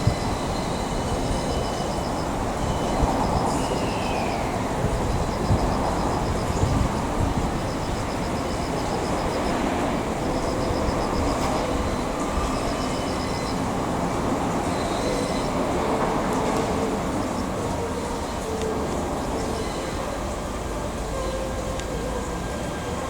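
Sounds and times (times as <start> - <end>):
rumble of railway wheels: 0.0 - 23.0
high fast ticking: 0.9 - 11.4.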